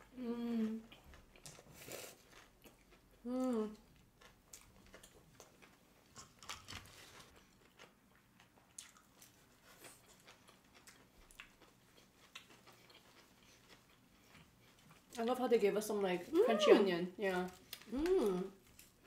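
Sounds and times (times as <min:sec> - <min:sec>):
close-miked chewing: 0:00.4 - 0:15.3.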